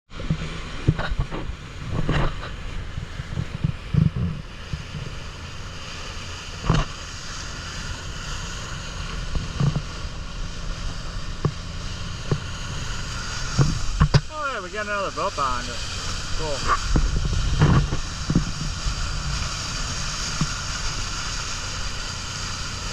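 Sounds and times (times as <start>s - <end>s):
wind buffeting microphone: 0.1s - 14.3s, 15.5s - 22.9s
boat engine low rumble: 0.1s - 22.9s.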